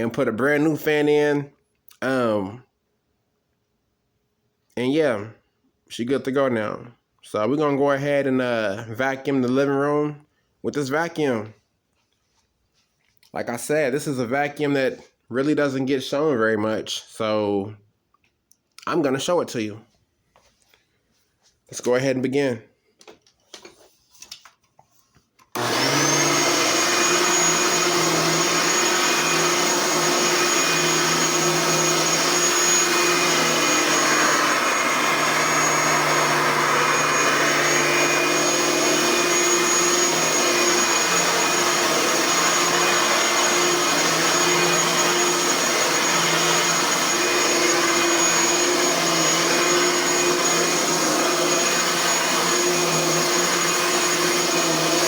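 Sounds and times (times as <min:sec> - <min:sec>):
vacuum cleaner running: 0:00.0 - 0:01.4, 0:25.6 - 0:55.0.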